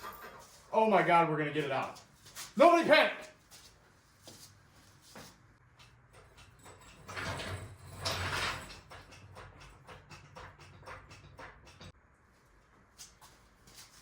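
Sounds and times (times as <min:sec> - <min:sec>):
metal scraping and rumbling: 0:06.5 - 0:11.9.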